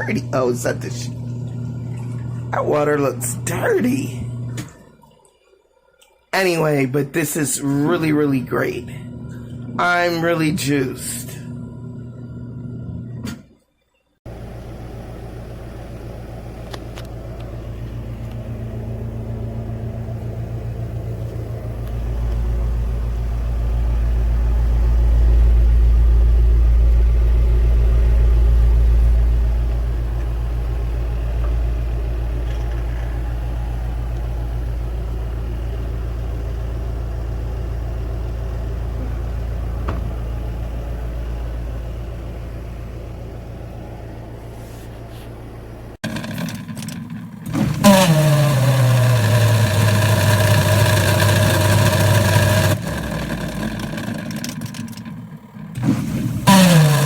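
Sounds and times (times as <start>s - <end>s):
washing machine motor humming: 0.0s - 5.2s, 6.4s - 13.4s, 14.3s - 57.0s.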